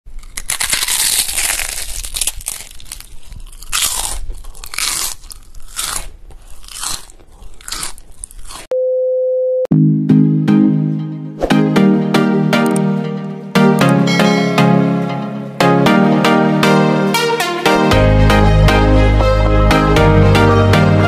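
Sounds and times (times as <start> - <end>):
crispy food crunching: 0.1 - 8.7
test-card beep: 8.7 - 9.7
plucked-string intro music: 9.7 - 21.0.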